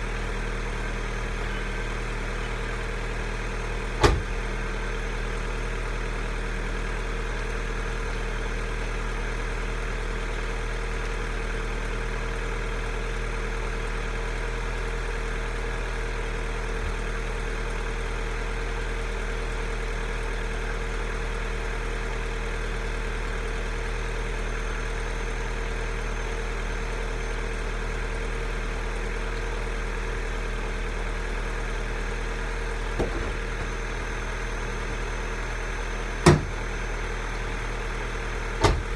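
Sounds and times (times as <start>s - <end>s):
car engine idling: 0.0s - 38.9s
brief knock: 4.0s - 4.3s, 33.0s - 33.4s, 36.2s - 36.6s.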